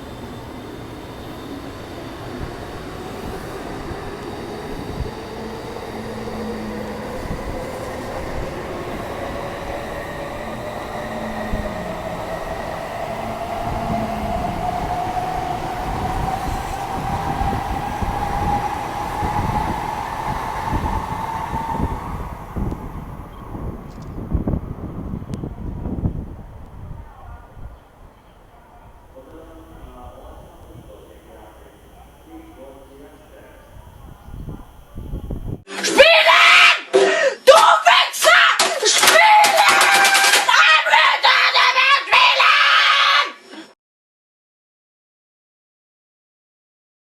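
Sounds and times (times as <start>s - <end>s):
train running rumble: 0.0s - 35.7s
electric train motors whining: 0.0s - 36.4s, 38.2s - 43.0s.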